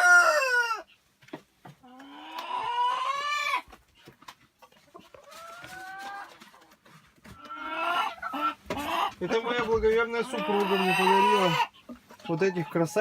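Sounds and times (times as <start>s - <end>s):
rooster crowing: 0.0s - 0.8s
chicken calls: 0.0s - 13.0s.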